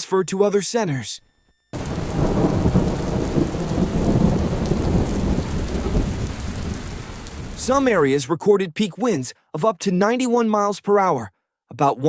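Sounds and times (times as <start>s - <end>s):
heavy rain: 1.8s - 8.0s
thunder rumble: 1.8s - 8.0s.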